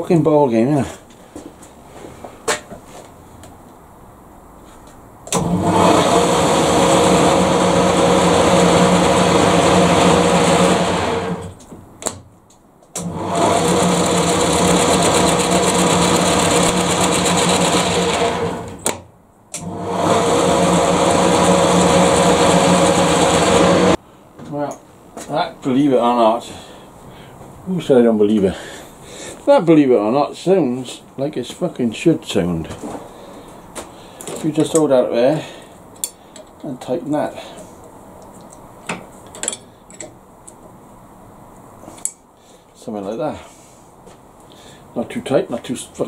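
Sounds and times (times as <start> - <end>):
lathe motor humming and whining: 5.4 - 11.5, 13.0 - 18.8, 19.6 - 24.0.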